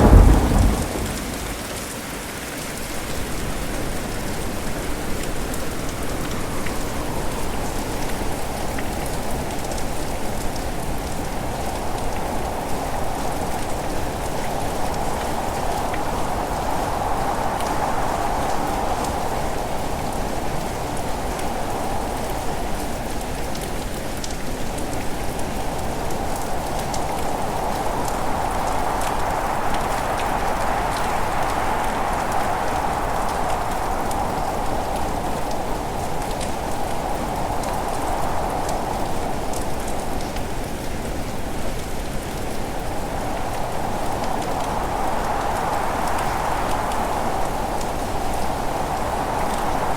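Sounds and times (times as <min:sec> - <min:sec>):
heavy rain hissing: 0:00.0 - 0:22.7, 0:25.6 - 0:49.9.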